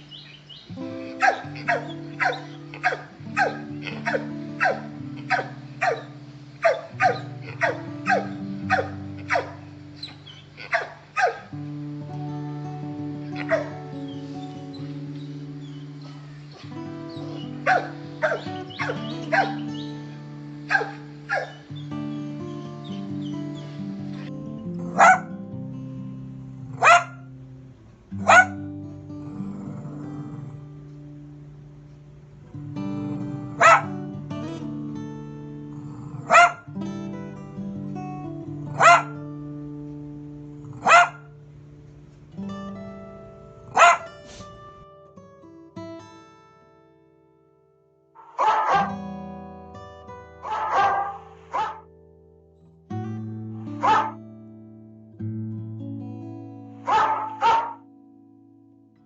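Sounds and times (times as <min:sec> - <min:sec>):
plucked guitar music: 0:00.0 - 0:59.0
dog barking: 0:01.0 - 0:11.5, 0:13.4 - 0:13.8, 0:17.6 - 0:19.8, 0:20.7 - 0:21.6, 0:24.8 - 0:25.4, 0:26.8 - 0:27.3, 0:28.2 - 0:28.6, 0:33.5 - 0:34.0, 0:36.2 - 0:36.7, 0:38.7 - 0:39.2, 0:40.7 - 0:41.3, 0:43.7 - 0:44.4, 0:48.2 - 0:49.0, 0:50.4 - 0:51.9, 0:53.6 - 0:54.2, 0:56.8 - 0:57.8.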